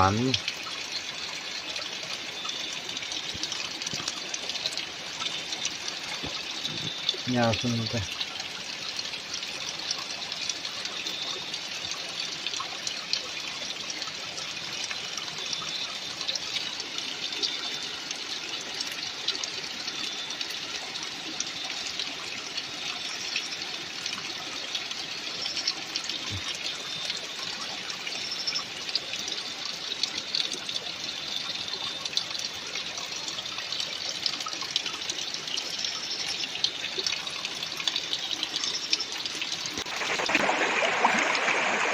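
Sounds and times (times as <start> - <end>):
water rushing: 0.0 - 14.4, 39.5 - 41.9
small water splashes: 34.0 - 41.9.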